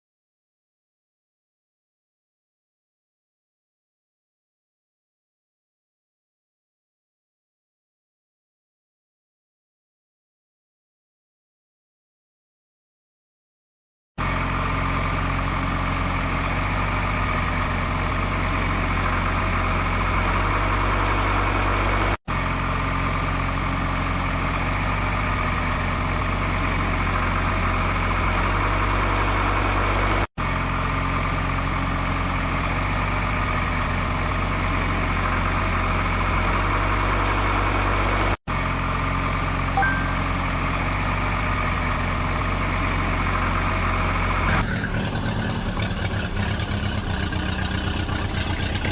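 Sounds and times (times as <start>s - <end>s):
engine idling: 14.2s - 48.9s.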